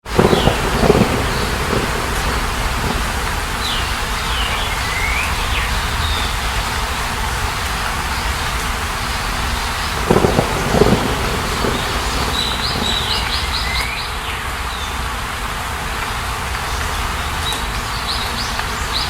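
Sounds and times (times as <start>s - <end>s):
rushing noise with low rumble: 0.1s - 13.8s
bird chirping: 0.2s - 6.4s, 9.7s - 15.0s.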